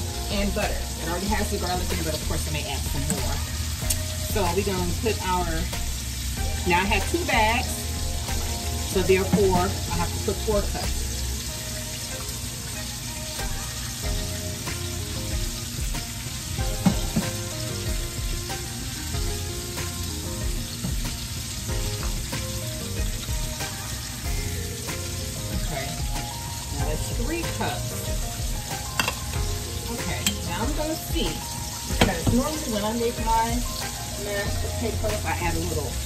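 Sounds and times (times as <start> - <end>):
food sizzling in pans: 0.0 - 36.0
kitchen utensils clinking: 28.7 - 33.1.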